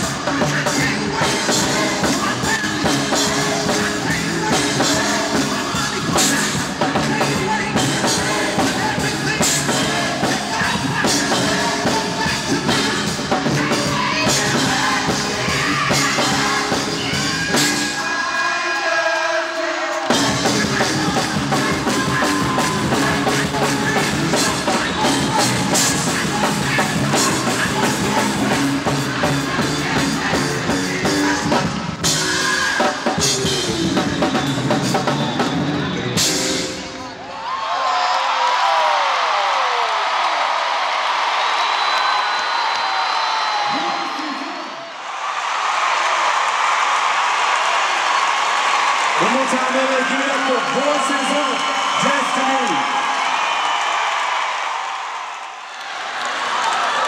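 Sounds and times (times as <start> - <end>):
drum kit: 0.0 - 18.6, 19.9 - 37.1
gospel choir singing: 0.0 - 33.4
band playing: 0.0 - 37.4.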